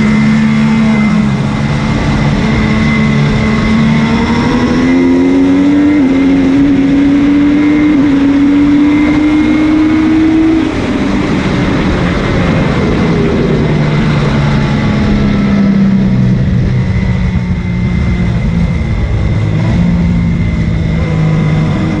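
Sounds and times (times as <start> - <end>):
motorcycle engine: 0.0 - 22.0
wind noise: 0.0 - 22.0.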